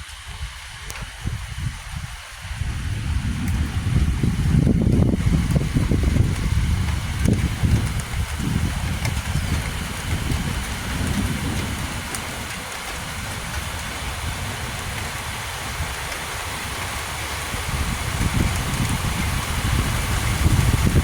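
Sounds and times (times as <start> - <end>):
heavy rain hissing: 0.0 - 21.0
low thunder rumble: 0.0 - 21.0.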